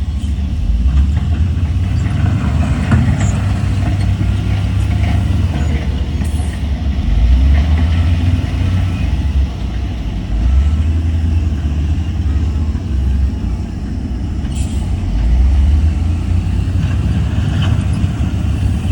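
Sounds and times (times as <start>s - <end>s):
diesel engine rumbling: 0.0s - 18.9s
light clanking and rattling: 0.1s - 8.9s.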